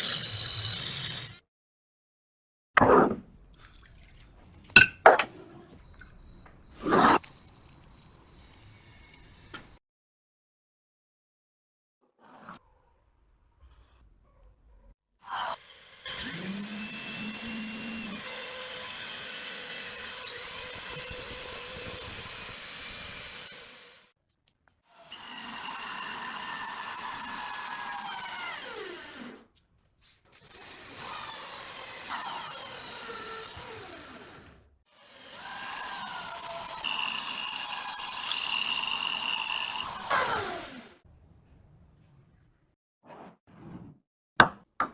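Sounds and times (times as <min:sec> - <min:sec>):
handheld power tool running: 0:15.3 - 0:24.1, 0:25.0 - 0:29.4, 0:30.4 - 0:41.0.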